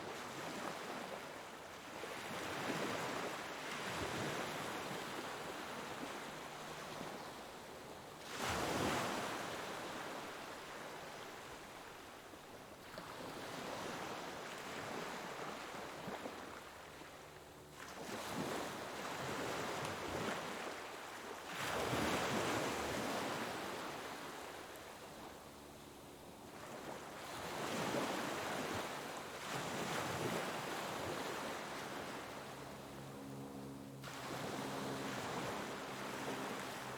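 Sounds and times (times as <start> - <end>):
sea waves breaking on shore: 0.0 - 25.4, 26.4 - 36.9.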